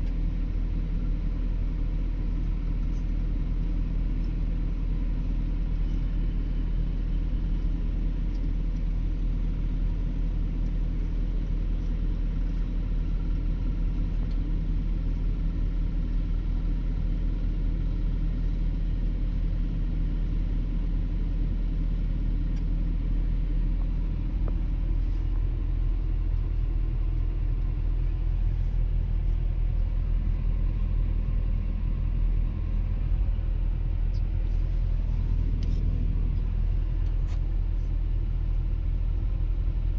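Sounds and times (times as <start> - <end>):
excavator engine drone: 0.0 - 39.9.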